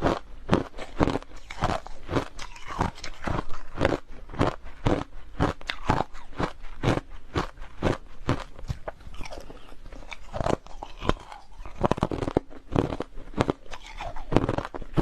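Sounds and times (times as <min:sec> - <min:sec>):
crushed ice being chewed: 0:00.0 - 0:15.0.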